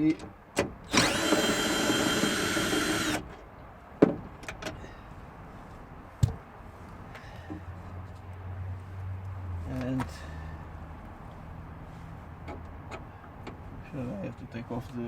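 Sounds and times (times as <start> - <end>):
cordless drill running: 0.9 - 3.3.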